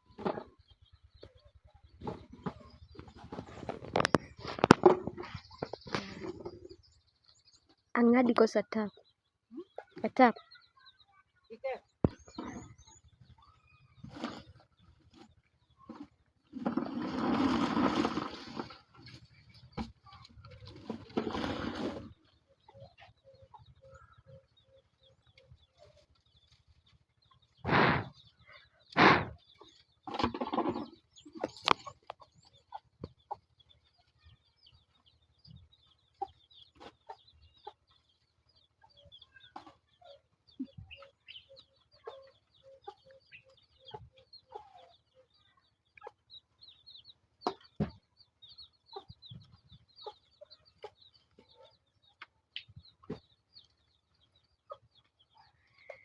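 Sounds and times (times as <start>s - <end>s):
chickens clucking: 0.0s - 56.0s
loud noises: 28.9s - 29.4s.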